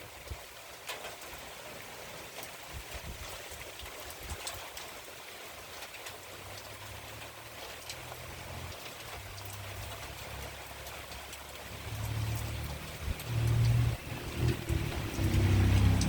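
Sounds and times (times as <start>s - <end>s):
rain falling: 0.0s - 16.0s
wind rumbling on microphone: 2.7s - 3.5s, 11.8s - 16.0s.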